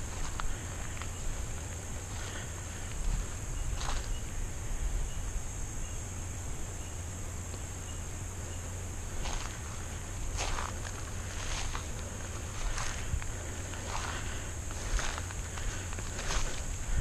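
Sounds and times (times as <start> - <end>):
footsteps crunching on dry leaves: 0.0 - 4.4, 9.0 - 17.0
high-pitched insect chorus: 0.0 - 17.0.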